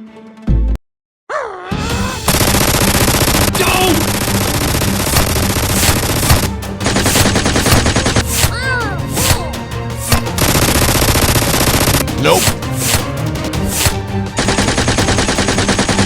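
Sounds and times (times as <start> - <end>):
automatic gunfire: 2.3 - 8.2, 10.1 - 13.0, 14.4 - 16.0.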